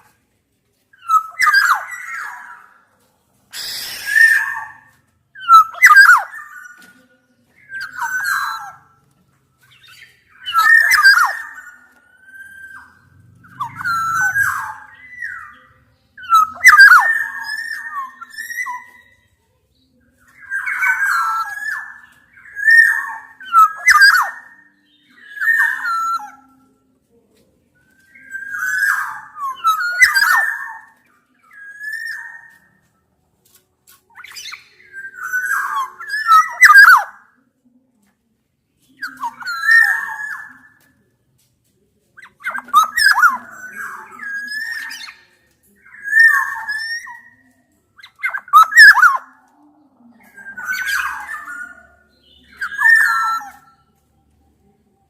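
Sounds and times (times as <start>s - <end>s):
oriole harsh scratchy calls: 1.0s - 2.9s, 3.5s - 6.8s, 9.7s - 19.3s, 20.3s - 26.6s, 27.9s - 32.8s, 34.0s - 37.3s, 39.0s - 40.8s, 42.2s - 49.5s, 50.2s - 53.9s.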